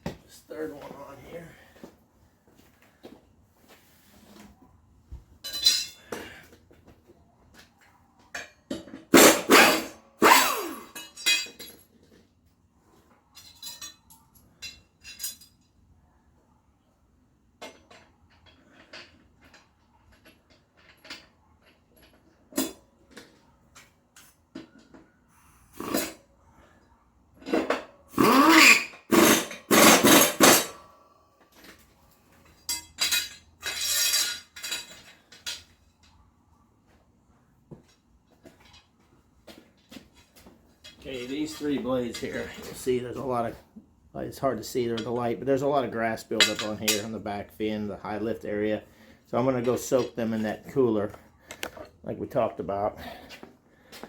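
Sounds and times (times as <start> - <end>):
metal blades and tools clanking: 5.4 - 6.4, 9.2 - 11.8, 28.6 - 30.8, 32.6 - 35.6, 46.3 - 47.2.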